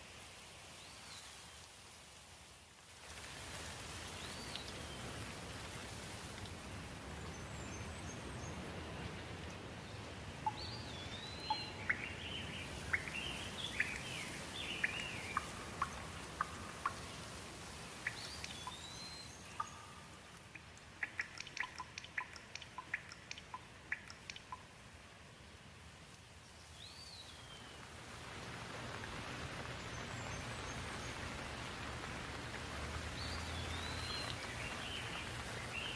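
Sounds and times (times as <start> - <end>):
rain hissing: 3.0 - 35.9
small birds chirping and whistling: 10.4 - 16.5, 18.0 - 20.0, 33.2 - 35.9.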